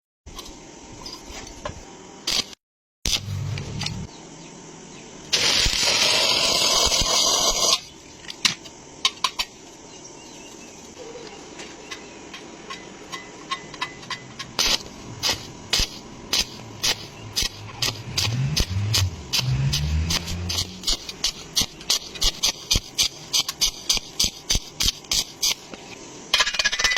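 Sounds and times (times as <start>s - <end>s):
welding arc crackling: 2.3s - 4.1s, 5.3s - 7.9s, 14.5s - 25.8s.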